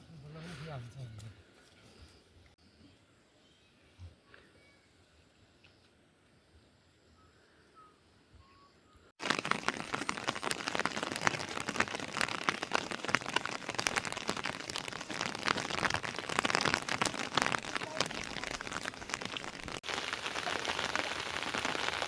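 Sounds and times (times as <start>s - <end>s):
heavy rain hiss: 9.2s - 22.0s
sharp raindrop hits: 9.2s - 22.0s.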